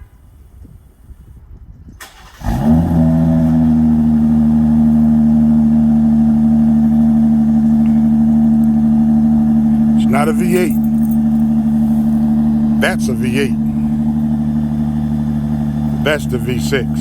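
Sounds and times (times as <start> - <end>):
car engine starting and idling: 2.0 - 17.0.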